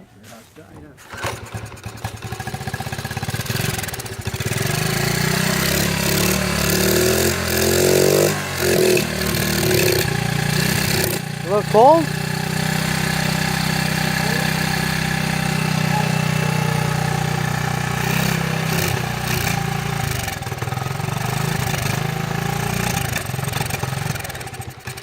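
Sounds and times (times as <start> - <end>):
small engine idling: 1.0 - 25.0.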